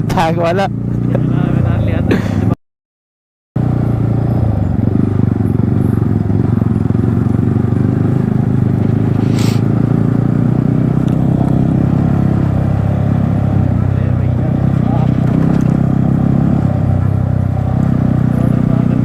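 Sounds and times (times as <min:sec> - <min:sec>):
motorcycle engine running: 0:00.0 - 0:02.6, 0:03.6 - 0:19.0.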